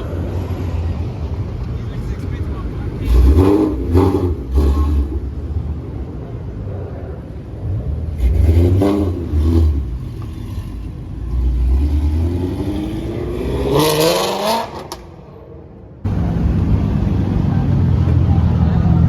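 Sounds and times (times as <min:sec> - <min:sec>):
car engine revving: 0:02.6 - 0:05.9, 0:07.6 - 0:15.1.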